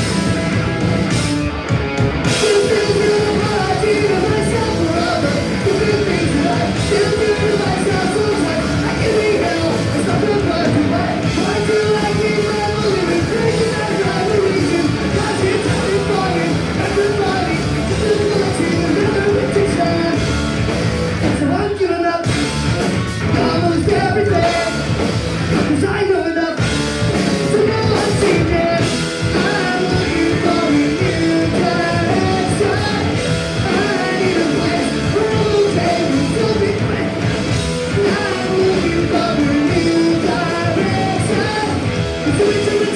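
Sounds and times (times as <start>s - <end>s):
punk rock band playing: 0.0s - 42.9s.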